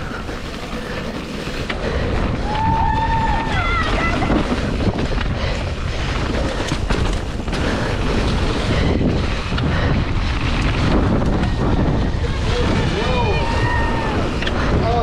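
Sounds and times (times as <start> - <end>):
bike clattering over rough trail: 0.0 - 15.0
wind buffeting microphone: 0.0 - 15.0.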